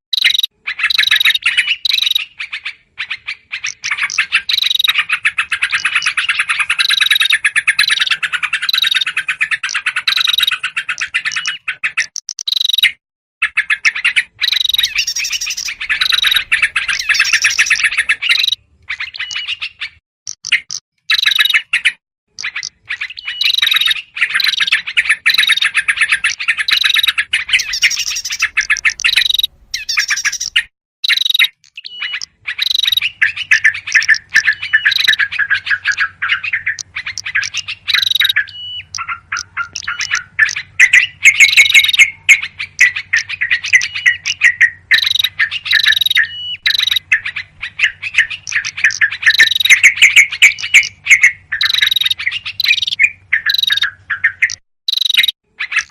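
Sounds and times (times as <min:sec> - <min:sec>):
bulbuls chattering calls: 0:14.5 - 0:18.6, 0:23.6 - 0:30.7, 0:32.2 - 0:54.6.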